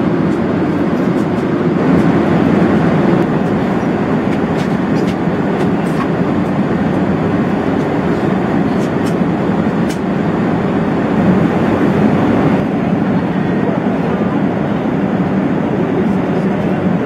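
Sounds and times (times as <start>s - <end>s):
airplane cabin rumble: 0.0s - 17.0s.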